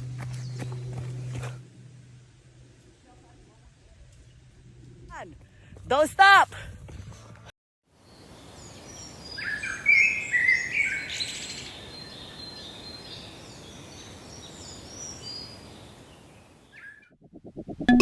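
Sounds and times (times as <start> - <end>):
outdoor background hiss: 7.9 - 16.8.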